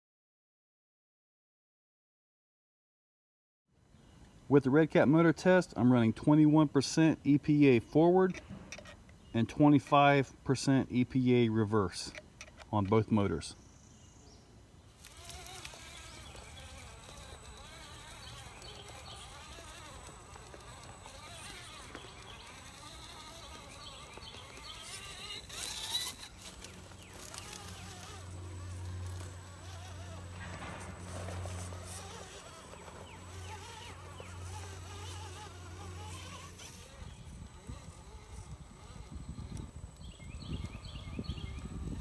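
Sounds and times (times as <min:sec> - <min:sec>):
toy truck motor whining: 0:05.1 - 0:10.0, 0:15.0 - 0:42.0.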